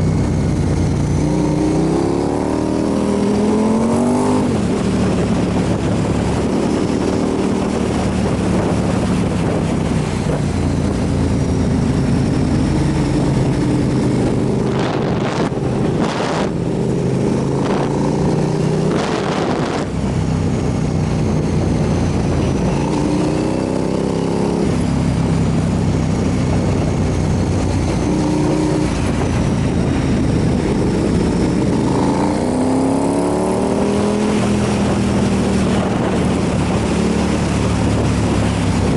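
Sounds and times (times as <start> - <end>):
motorcycle engine running: 0.0 - 38.9
wind noise: 0.0 - 38.9.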